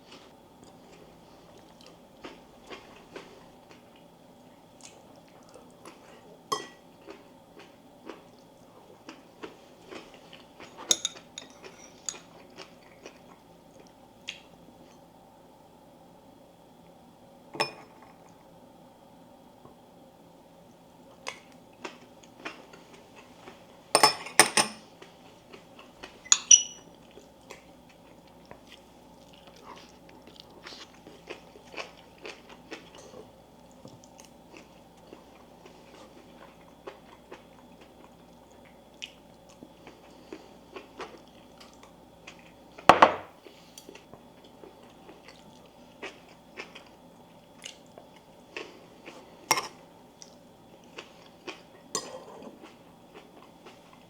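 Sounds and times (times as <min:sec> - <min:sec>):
dishes clinking and clattering: 0:26.3 - 0:26.9
person chewing: 0:27.0 - 0:42.6, 0:43.4 - 0:47.0, 0:47.6 - 0:54.0.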